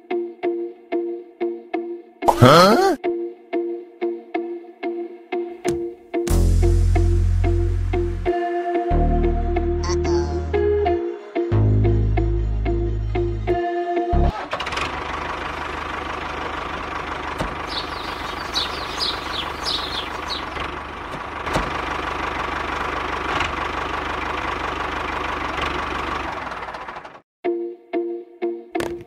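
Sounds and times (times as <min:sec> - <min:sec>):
small motor rattling and humming: 0:14.5 - 0:27.2.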